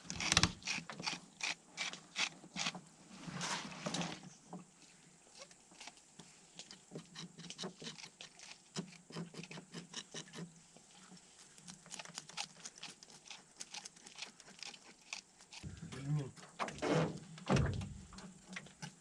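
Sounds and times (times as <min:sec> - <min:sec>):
knife scraping fish scales: 0:00.0 - 0:02.8, 0:07.1 - 0:10.5.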